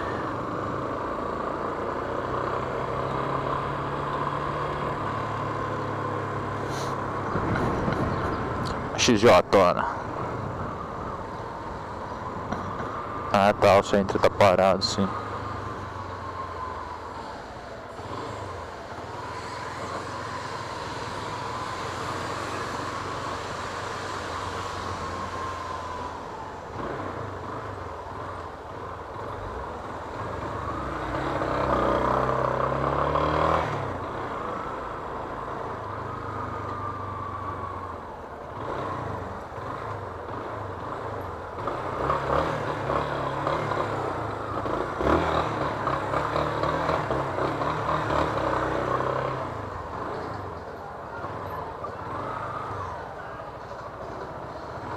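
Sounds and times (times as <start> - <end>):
town traffic: 0.0 - 54.9
wind noise: 7.2 - 8.9.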